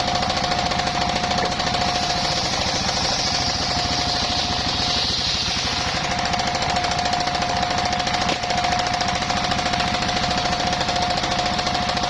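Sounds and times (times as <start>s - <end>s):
saw blade whine: 0.0s - 12.0s
sawmill engine pulsing: 0.0s - 12.0s
blade cutting wood hiss: 1.2s - 7.4s.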